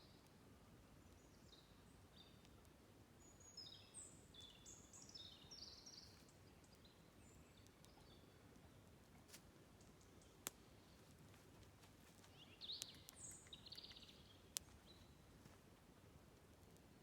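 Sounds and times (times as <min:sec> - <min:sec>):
faint outdoor ambience: 0:00.0 - 0:17.0
small bird chirping and trilling: 0:12.3 - 0:15.2.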